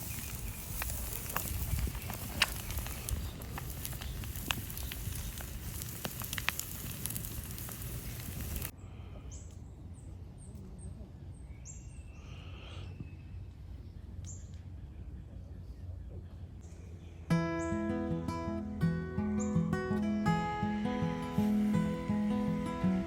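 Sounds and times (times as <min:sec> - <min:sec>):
campfire crackling and popping: 0:00.0 - 0:08.7, 0:17.3 - 0:23.0
small birds chirping: 0:00.0 - 0:23.0.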